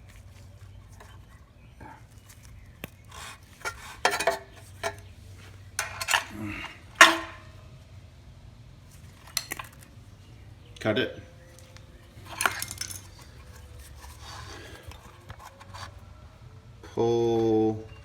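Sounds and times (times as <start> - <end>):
metal tools clinking: 3.6 - 5.1, 5.8 - 7.6, 12.2 - 14.5.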